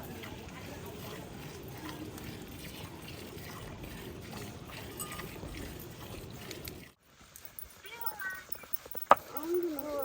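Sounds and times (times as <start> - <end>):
water trickling and pouring: 0.0 - 10.0.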